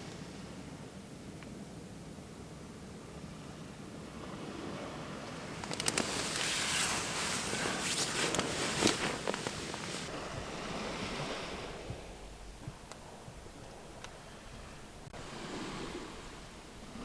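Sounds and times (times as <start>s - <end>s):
sea waves washing ashore: 3.1s - 17.0s
sharp clicks: 5.6s - 6.6s.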